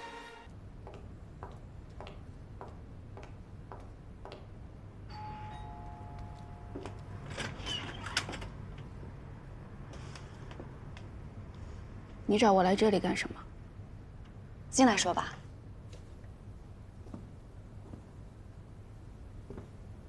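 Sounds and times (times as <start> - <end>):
soft regular taps: 0.8 - 4.6, 17.0 - 18.2, 19.4 - 19.8
two-tone doorbell chime: 5.1 - 7.1.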